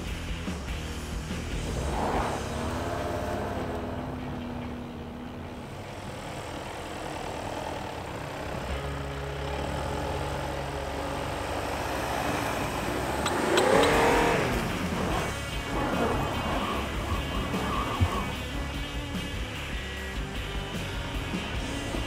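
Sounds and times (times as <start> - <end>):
car engine revving: 0.0 - 22.0
car engines in deep snow: 0.0 - 22.0
wheels spinning in snow: 5.5 - 22.0.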